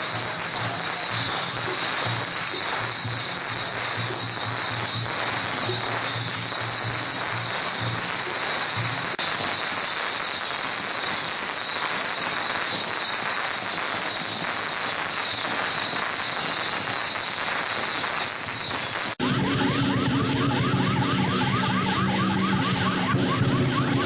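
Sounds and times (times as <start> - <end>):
firecrackers crackling: 0.0 - 24.0
high-pitched tone: 19.2 - 24.0.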